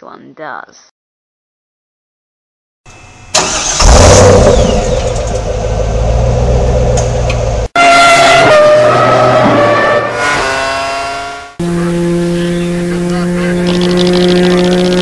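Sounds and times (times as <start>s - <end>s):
car engine starting and running: 2.9s - 7.7s, 8.3s - 15.0s
engine revving: 3.3s - 15.0s.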